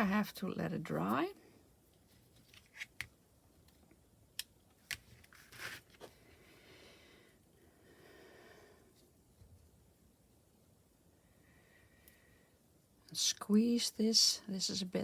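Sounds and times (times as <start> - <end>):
soft rustling: 1.8 - 3.9.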